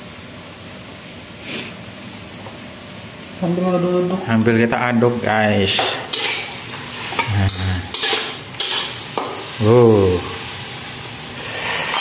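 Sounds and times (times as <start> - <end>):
chicken sizzling in a wok: 0.0 - 12.0
spatula scraping a pan: 5.8 - 9.4.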